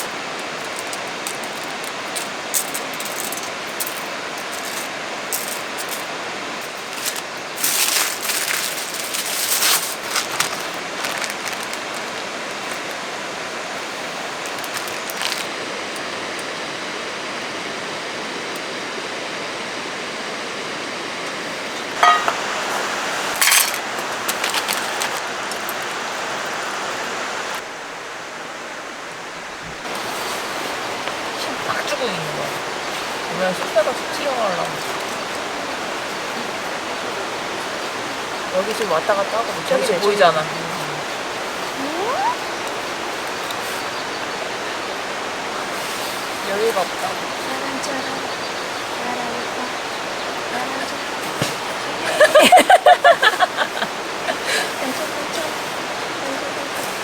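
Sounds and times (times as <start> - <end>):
mountain stream rushing: 0.0 - 57.0
light clinks and knocks: 22.0 - 22.5, 23.4 - 25.7.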